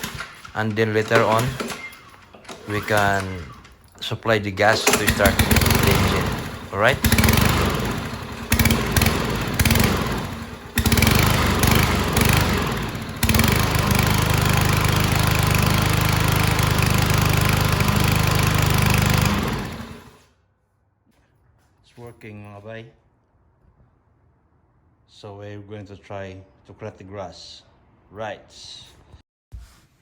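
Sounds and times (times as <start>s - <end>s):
lawn mower engine: 0.0s - 20.3s.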